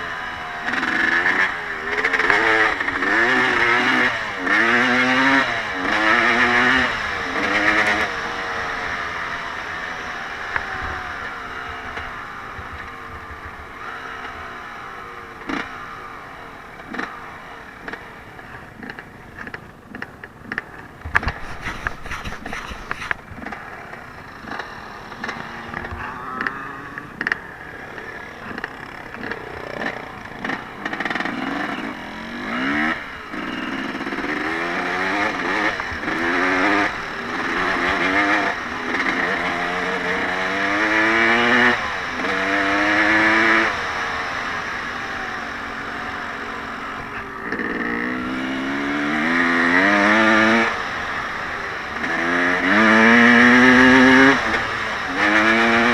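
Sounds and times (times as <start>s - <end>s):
off-road vehicle engine revving: 0.0s - 55.9s.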